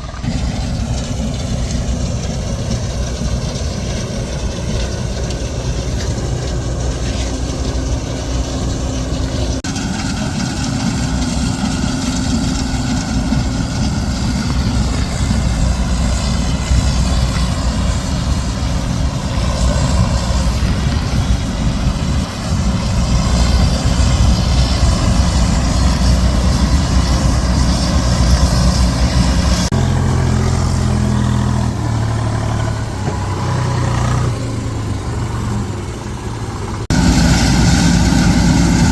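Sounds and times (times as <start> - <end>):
diesel farm machinery running: 0.0 - 38.9.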